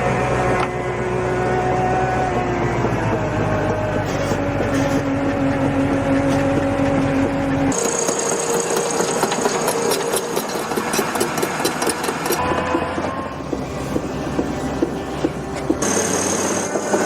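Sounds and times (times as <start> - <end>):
machine engine running: 0.0 - 17.0
steady low hum: 0.0 - 17.0
rapid clattering ticks: 4.4 - 12.4.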